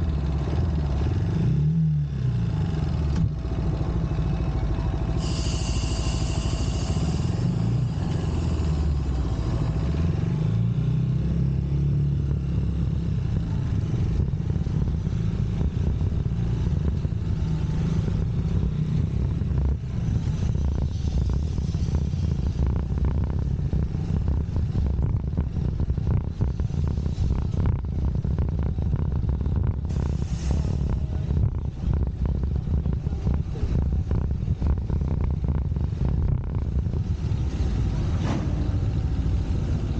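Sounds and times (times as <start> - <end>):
wind and road noise: 0.0 - 39.9
motorcycle engine running: 2.0 - 29.9.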